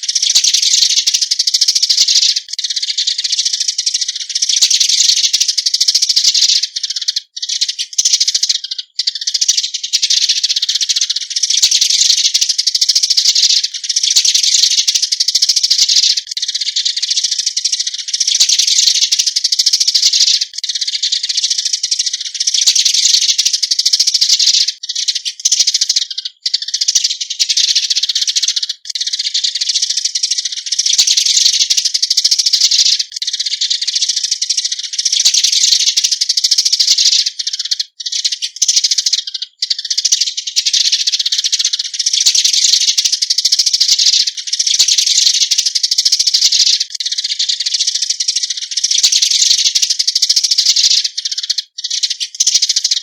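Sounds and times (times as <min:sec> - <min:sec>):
sparrows chirping chatter: 0:00.0 - 0:53.0.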